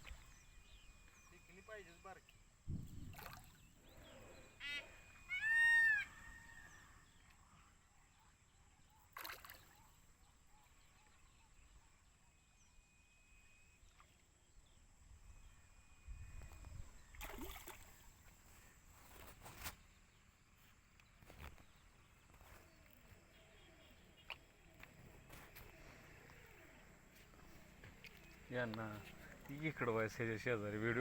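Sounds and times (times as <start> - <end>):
sharp knocks or splashes: 2.7 - 3.6
faint thin calls: 3.4 - 7.8.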